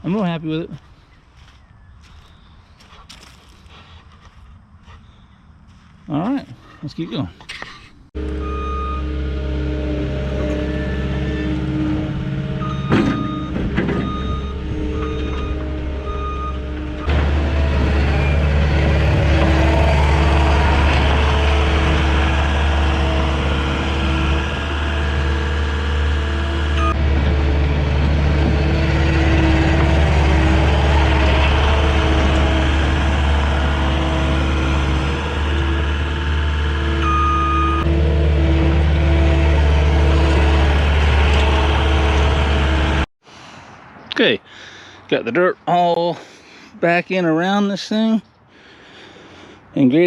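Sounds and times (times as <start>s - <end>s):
diesel engine running: 8.2s - 43.1s
backup alarm beeping: 8.4s - 9.2s, 12.6s - 17.1s, 37.0s - 37.9s.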